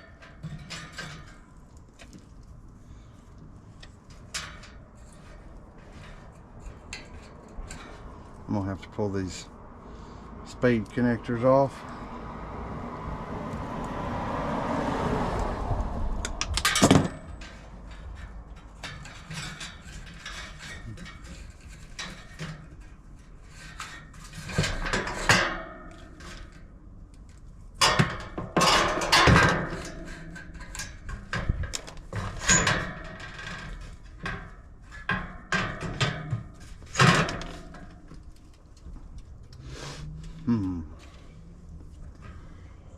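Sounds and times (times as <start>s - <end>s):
clicks and metal clatter of tools: 0.0s - 2.6s, 3.3s - 8.5s, 16.2s - 39.6s.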